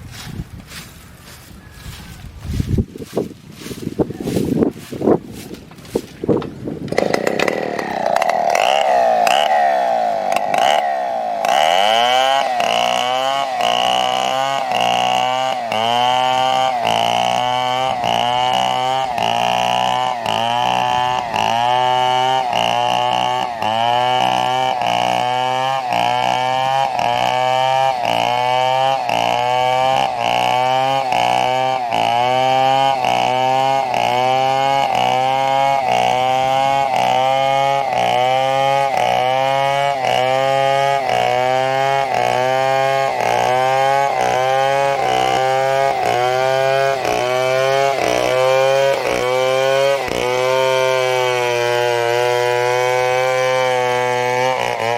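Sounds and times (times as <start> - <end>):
chainsaw cutting wood: 2.4 - 54.9.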